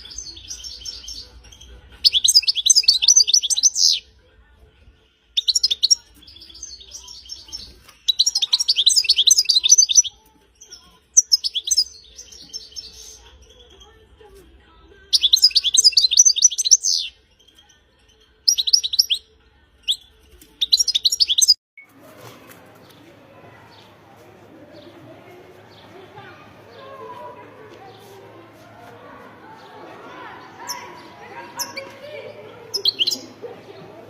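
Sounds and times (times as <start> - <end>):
goldfinch twittering song: 0.0 - 4.0, 5.4 - 13.8, 15.1 - 21.6, 32.7 - 33.4.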